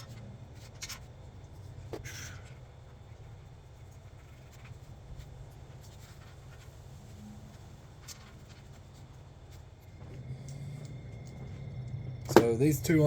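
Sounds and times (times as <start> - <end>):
steady low hum: 0.0 - 13.0
handling noise: 10.9 - 13.0.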